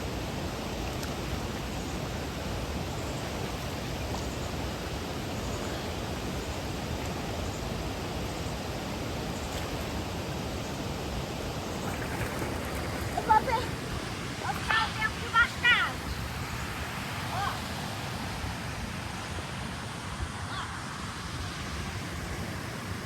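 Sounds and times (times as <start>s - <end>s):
waterfall rushing: 10.0s - 23.0s.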